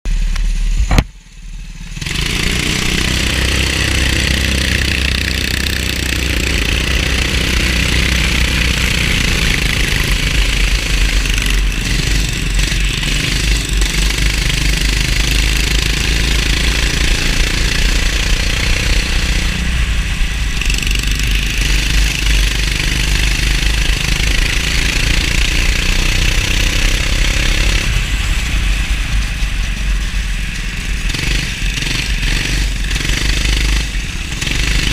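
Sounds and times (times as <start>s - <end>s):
go-kart engine running: 0.1s - 34.9s.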